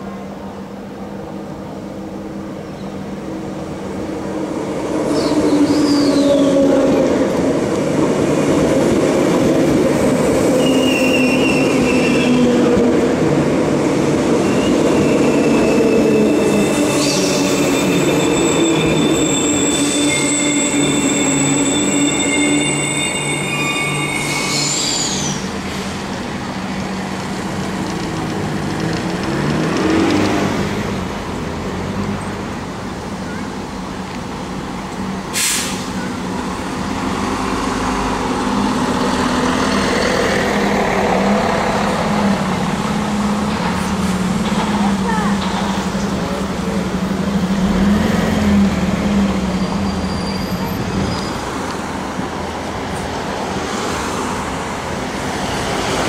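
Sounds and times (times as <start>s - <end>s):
electric train rumbling: 0.0s - 56.0s
high-pitched wheel squealing: 5.1s - 7.0s, 10.4s - 12.7s, 14.4s - 25.6s, 49.5s - 51.6s.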